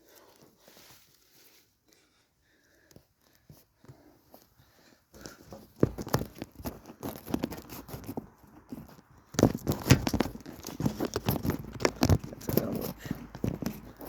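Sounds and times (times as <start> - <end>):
objects knocking and scraping: 5.4 - 14.0.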